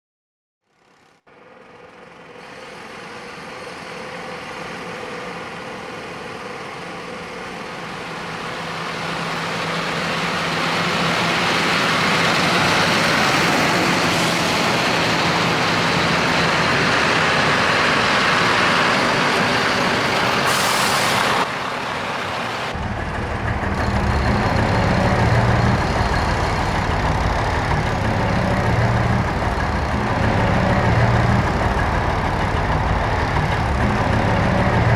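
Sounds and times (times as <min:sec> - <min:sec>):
heavy truck traffic: 0:01.4 - 0:34.9
diesel engine rumbling: 0:01.7 - 0:34.9
air brakes hissing: 0:07.8 - 0:22.7.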